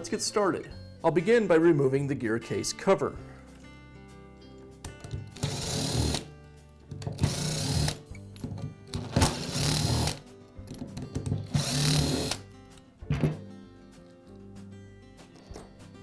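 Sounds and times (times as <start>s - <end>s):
power screwdriver running: 5.4s - 6.3s, 7.2s - 8.0s, 9.2s - 10.2s, 11.6s - 12.4s.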